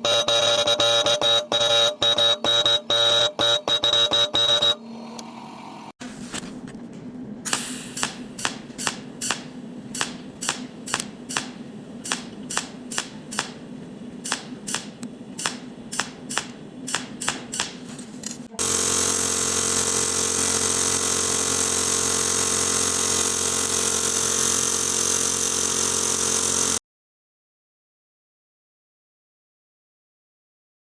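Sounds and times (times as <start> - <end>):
loud steady machine noise: 18.6 - 26.8
machine humming: 18.6 - 26.8.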